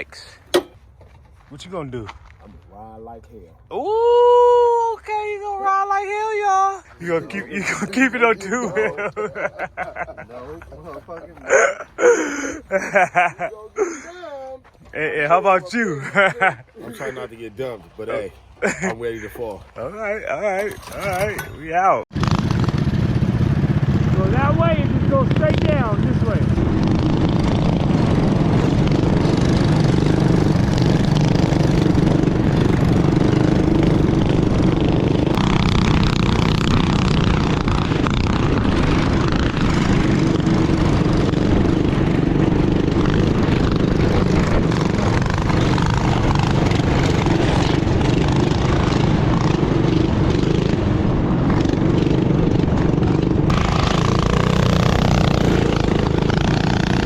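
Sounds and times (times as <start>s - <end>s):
rushing wind: 3.8s - 14.1s, 18.2s - 57.0s
mini bike engines running: 20.0s - 57.0s.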